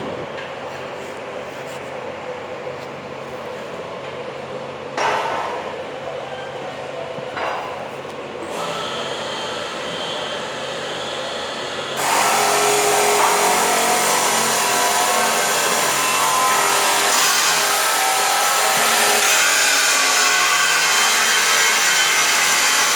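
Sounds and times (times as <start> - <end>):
power tool hissing: 11.4 - 21.2.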